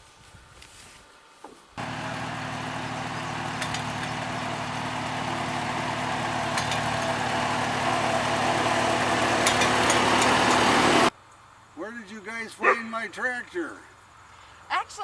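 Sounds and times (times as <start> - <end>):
vehicle engine running: 1.8 - 11.1.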